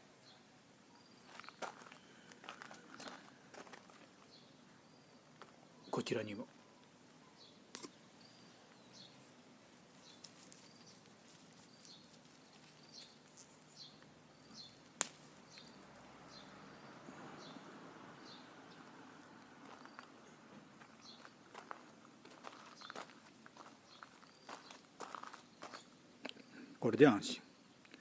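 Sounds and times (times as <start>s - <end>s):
small bird high calls: 4.2s - 17.6s.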